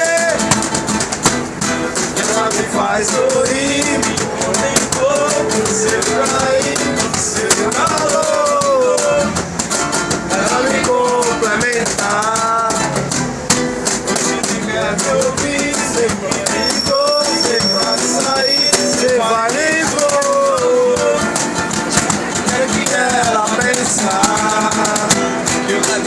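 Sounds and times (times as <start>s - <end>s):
acoustic guitar strumming: 0.0s - 26.0s
person singing wordless melody: 0.0s - 26.0s
thin high tone: 16.3s - 19.5s.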